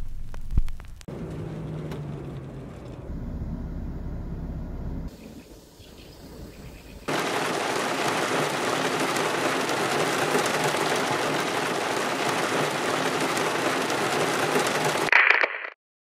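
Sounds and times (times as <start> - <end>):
heavy rain on car roof: 7.1 - 15.1.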